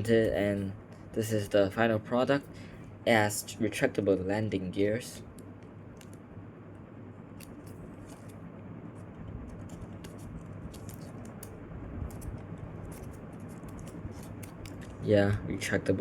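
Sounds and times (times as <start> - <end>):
stiff paper rustling and crinkling: 9.4 - 11.5, 12.1 - 15.1.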